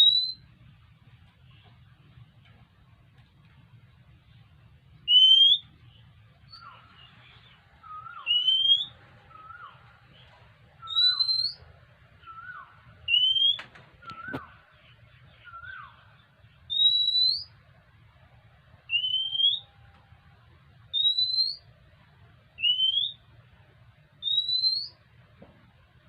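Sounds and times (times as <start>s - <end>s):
bird whistling: 0.0s - 0.5s, 5.1s - 5.8s, 6.5s - 17.6s, 18.9s - 19.8s, 20.9s - 21.7s, 22.6s - 23.2s, 24.2s - 25.0s.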